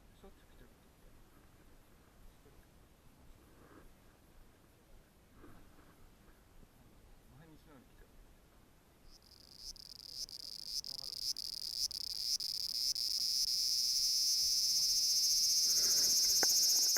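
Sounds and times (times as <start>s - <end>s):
high-pitched insect buzzing: 9.2s - 16.9s.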